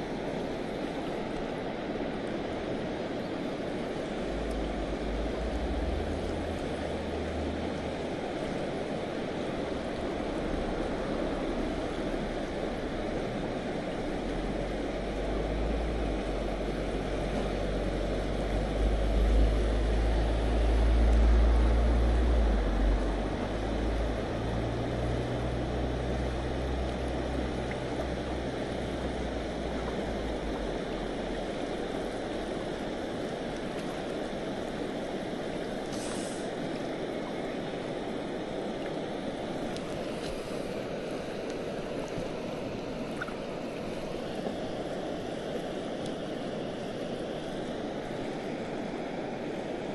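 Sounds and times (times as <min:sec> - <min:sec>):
river rushing over rapids: 0:00.0 - 0:49.9.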